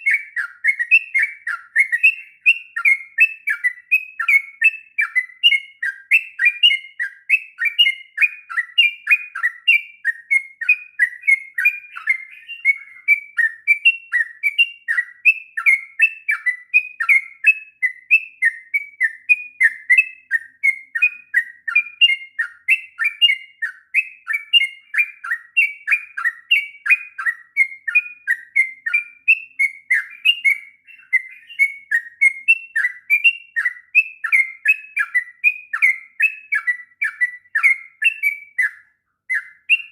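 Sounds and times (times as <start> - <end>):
bird singing bubbly chirps: 0.0 - 39.9.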